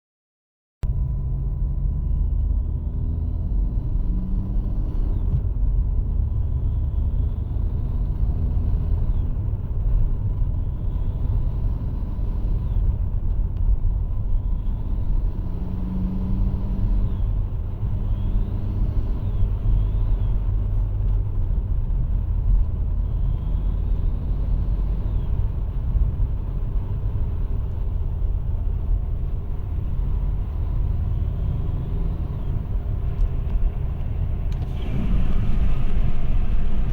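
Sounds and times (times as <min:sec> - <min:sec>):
diesel engine running: 0:19.3 - 0:36.9.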